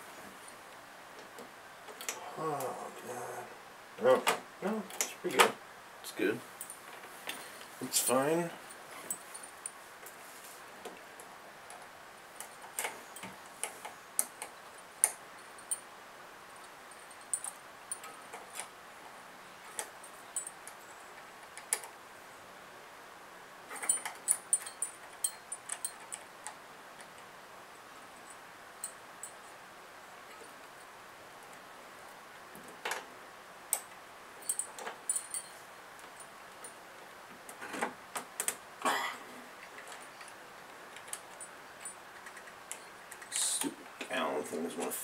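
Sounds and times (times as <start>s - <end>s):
metal tools clicking and tapping: 16.9s - 18.7s, 19.7s - 21.9s, 23.7s - 26.6s, 33.7s - 36.8s.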